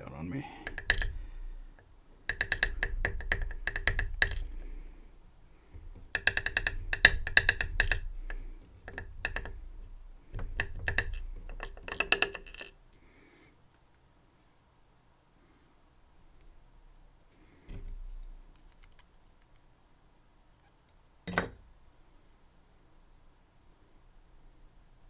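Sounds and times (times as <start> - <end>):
metal lock parts clicking: 0.5 - 12.8, 17.6 - 19.1, 21.3 - 21.6.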